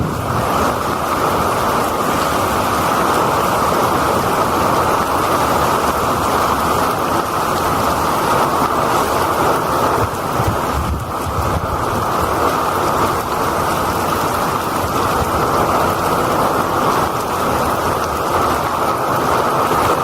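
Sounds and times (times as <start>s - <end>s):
heavy rain: 0.0s - 20.0s
rushing runoff water: 0.0s - 20.0s.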